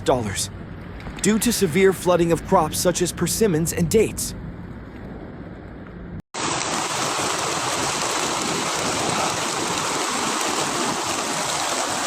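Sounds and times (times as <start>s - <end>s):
water rushing: 6.4s - 12.0s.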